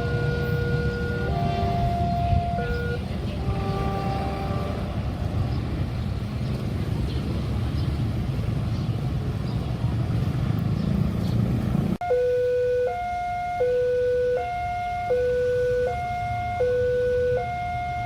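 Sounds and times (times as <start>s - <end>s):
electronic two-tone alarm: 0.0s - 3.0s, 12.0s - 18.0s.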